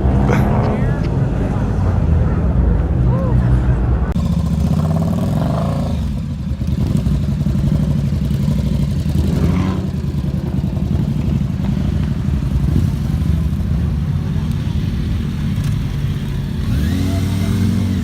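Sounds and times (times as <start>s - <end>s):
motorcycle engine revving: 4.2s - 18.0s.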